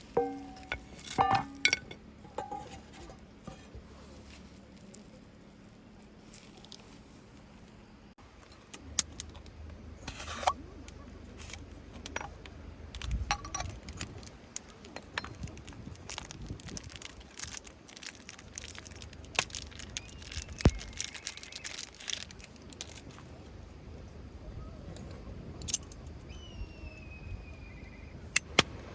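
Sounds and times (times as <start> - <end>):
objects clicking and clinking: 0.0 - 3.7, 11.4 - 23.2
low steady hum: 0.0 - 28.9.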